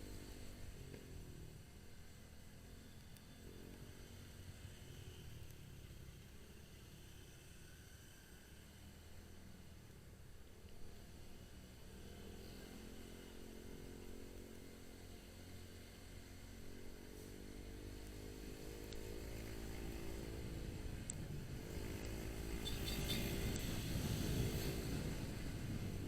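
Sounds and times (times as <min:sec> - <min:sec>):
motorcycle engine running: 0:12.5 - 0:26.0.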